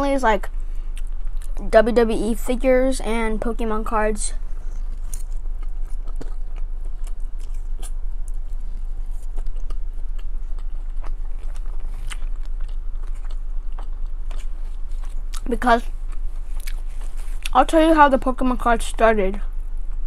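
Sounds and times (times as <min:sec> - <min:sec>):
steady low hum: 0:00.0 - 0:20.0
child chewing mouth sounds: 0:00.4 - 0:01.7, 0:04.3 - 0:18.4.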